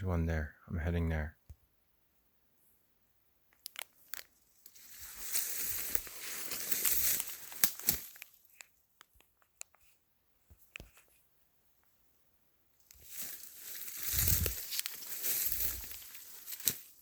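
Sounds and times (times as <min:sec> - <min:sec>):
twigs snapping: 0:03.5 - 0:09.3, 0:12.9 - 0:17.0
footsteps through dry brush: 0:04.0 - 0:08.8, 0:12.9 - 0:17.0.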